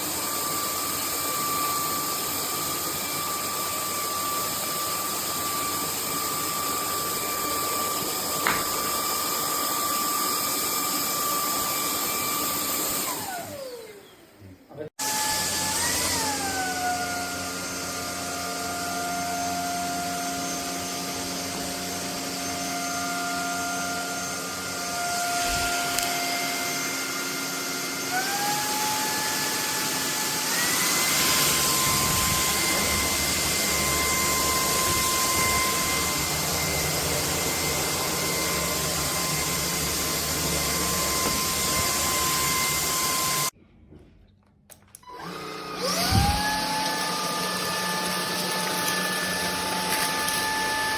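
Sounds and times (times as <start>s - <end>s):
stick vacuum motor whine: 0.0s - 14.2s, 15.0s - 43.6s, 45.0s - 50.9s.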